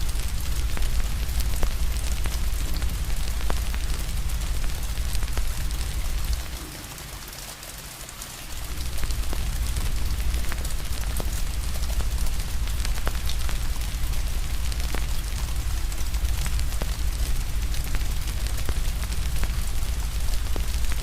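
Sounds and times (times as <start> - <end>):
wood fire crackling: 0.0 - 7.3, 8.4 - 21.0
steady rain hiss: 0.0 - 21.0
low rumble: 8.6 - 21.0.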